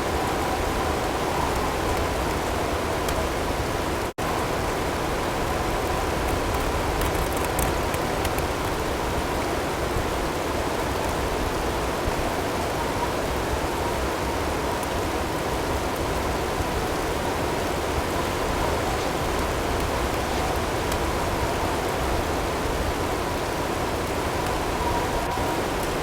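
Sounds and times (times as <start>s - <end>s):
faint hail ticks: 4.8s - 9.4s.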